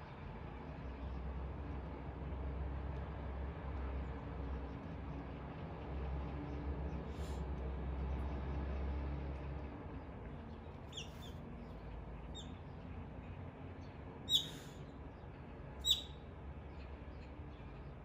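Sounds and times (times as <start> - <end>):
high bird chirps: 14.3 - 14.6, 15.8 - 16.2.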